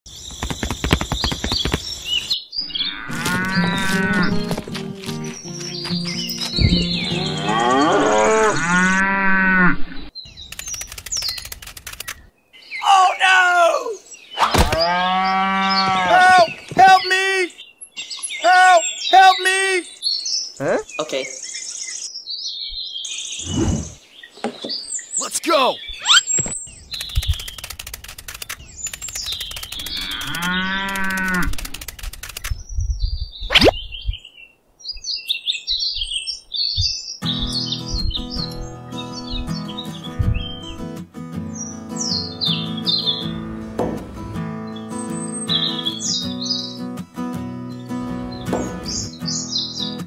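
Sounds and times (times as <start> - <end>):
high bird chirps: 0.1 - 4.6, 5.2 - 7.9, 10.2 - 12.9, 24.6 - 40.9, 41.5 - 43.4, 44.6 - 46.9, 47.8 - 50.0
rapid even clicking: 0.3 - 2.0, 10.4 - 12.2, 26.9 - 32.6
cows mooing: 2.6 - 4.6, 7.0 - 10.1, 14.8 - 16.2, 29.8 - 31.6.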